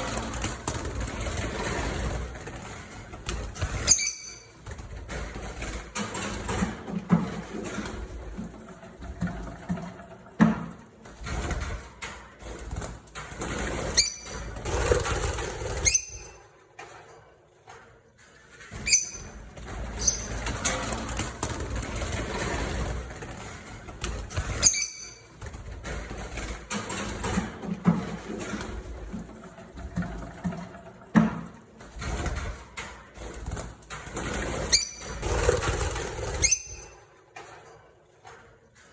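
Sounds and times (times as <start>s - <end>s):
noisy bird activity: 0.1s - 5.4s, 13.4s - 16.4s, 18.7s - 27.2s, 34.2s - 37.0s
sharp high lovebird chirps: 3.9s - 4.5s, 18.9s - 19.2s, 24.6s - 25.2s.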